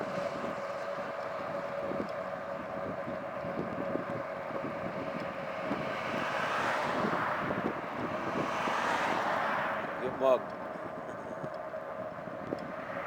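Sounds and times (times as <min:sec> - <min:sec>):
steady thin whine: 0:00.0 - 0:08.9
wind rushing over microphone: 0:00.0 - 0:13.0.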